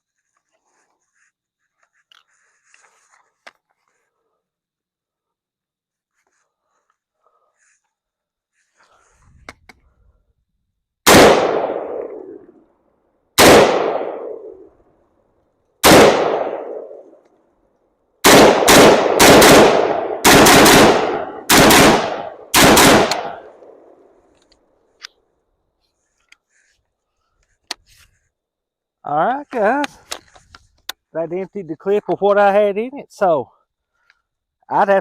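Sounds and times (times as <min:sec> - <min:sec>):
rifle shots with echo: 0:11.0 - 0:12.4, 0:13.4 - 0:14.6, 0:15.8 - 0:17.1, 0:18.2 - 0:23.9.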